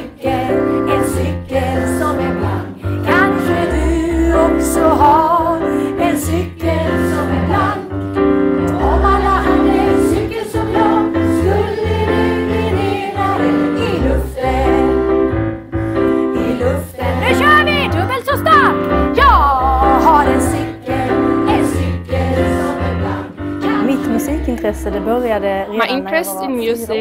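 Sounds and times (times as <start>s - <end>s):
choir singing: 0.0s - 26.3s
piano accompaniment: 0.0s - 27.0s.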